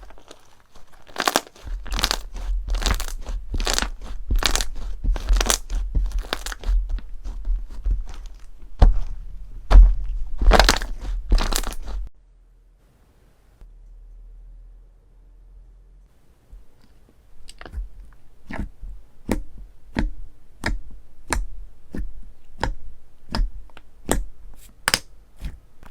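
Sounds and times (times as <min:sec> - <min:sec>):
slime crunching when squeezed: 0:00.0 - 0:07.4, 0:10.4 - 0:12.0.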